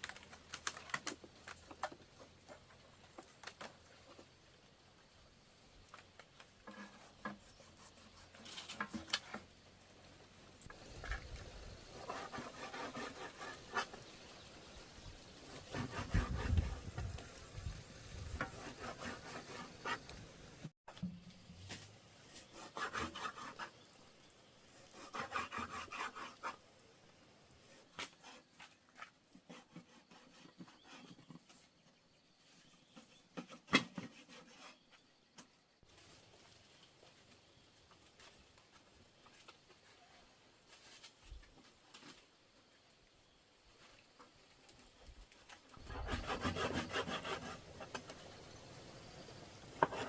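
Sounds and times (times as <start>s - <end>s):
rough scraping strokes: 10.7s - 14.1s, 15.4s - 17.3s, 18.1s - 20.1s, 22.2s - 23.8s, 24.8s - 26.6s, 45.7s - 48.1s, 49.8s - 50.0s.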